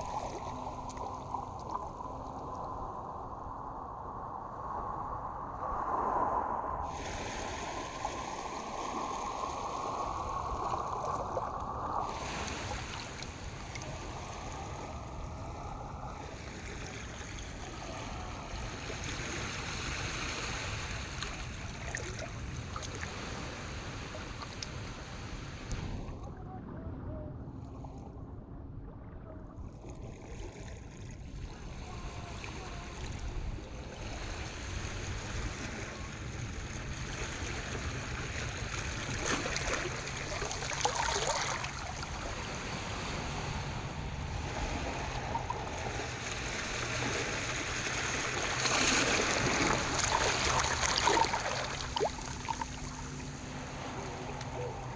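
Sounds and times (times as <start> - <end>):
water lapping: 0.0 - 4.7, 6.8 - 26.4, 29.2 - 54.9
low rumble: 0.0 - 19.0, 25.7 - 30.6.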